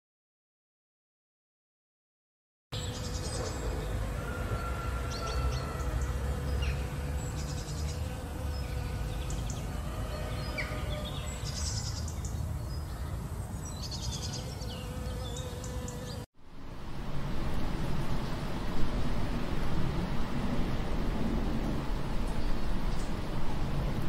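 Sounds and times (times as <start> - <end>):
honeybee buzzing: 2.8 - 11.6, 13.9 - 16.3
small birds chirping and trilling: 2.8 - 16.3.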